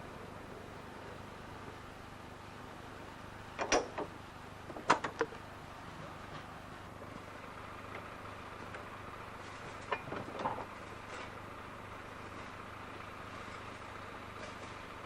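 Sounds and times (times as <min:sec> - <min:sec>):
electric tram humming: 0:00.0 - 0:15.0
sharp clicks and knocks: 0:03.6 - 0:05.5.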